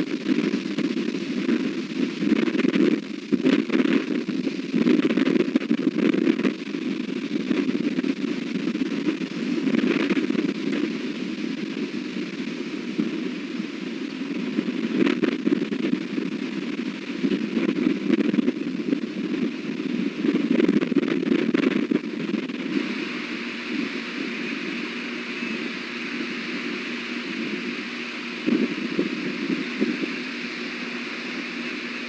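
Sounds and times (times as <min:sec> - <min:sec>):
wind buffeting microphone: 0:00.0 - 0:32.0
crackling clicks: 0:14.0 - 0:32.0.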